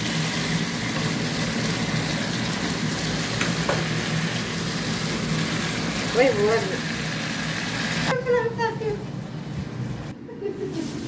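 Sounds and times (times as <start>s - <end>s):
food sizzling in a pan: 0.0s - 8.1s.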